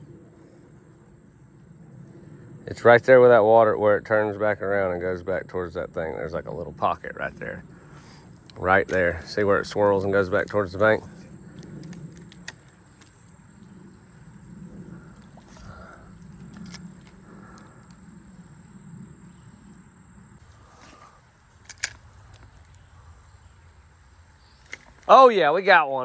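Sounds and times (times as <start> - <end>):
creek water rumbling: 2.7 - 21.2
sharp clicks: 11.5 - 13.2.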